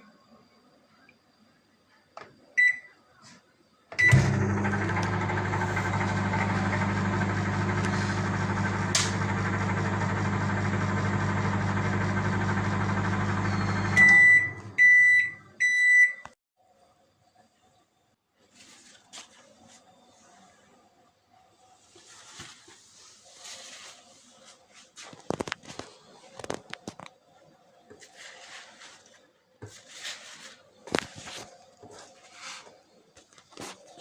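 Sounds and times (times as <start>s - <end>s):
microwave beeps: 2.6s - 3.0s, 4.0s - 16.4s
microwave oven humming: 4.0s - 15.5s.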